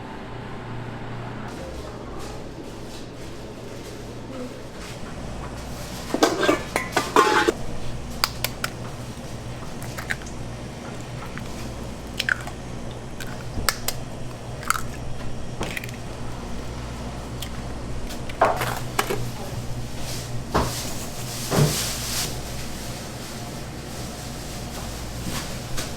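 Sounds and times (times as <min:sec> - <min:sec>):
low equipment hum: 0:00.0 - 0:25.9
metal utensils and pans clattering: 0:05.4 - 0:07.6.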